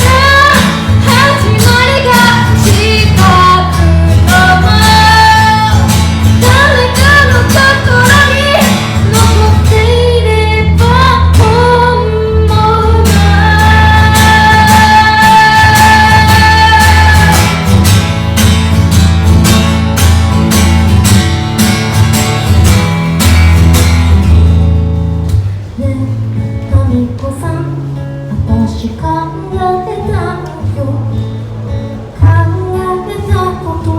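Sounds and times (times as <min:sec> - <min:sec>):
woman singing: 0:00.0 - 0:17.7, 0:25.8 - 0:31.4, 0:32.2 - 0:33.9
acoustic guitar strumming: 0:00.0 - 0:33.9.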